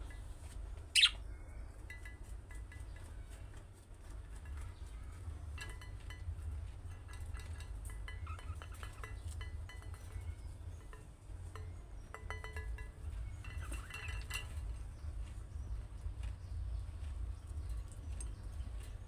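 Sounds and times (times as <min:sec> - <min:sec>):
budgerigars chirping: 0:01.0 - 0:01.2
steady low hum: 0:04.2 - 0:19.0.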